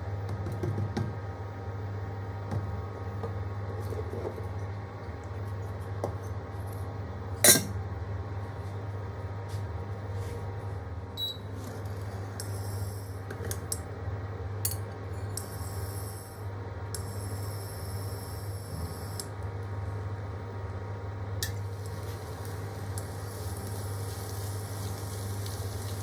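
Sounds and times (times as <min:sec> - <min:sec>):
steady low hum: 0:00.0 - 0:26.0
utensils and dishes clinking: 0:07.4 - 0:07.8.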